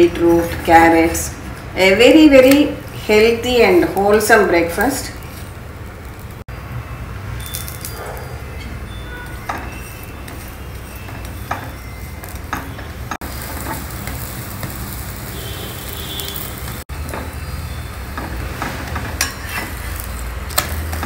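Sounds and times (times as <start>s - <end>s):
spatula scraping pan: 8.5s - 15.0s, 15.8s - 21.0s
flatbread sizzling on hot pan: 9.4s - 21.0s.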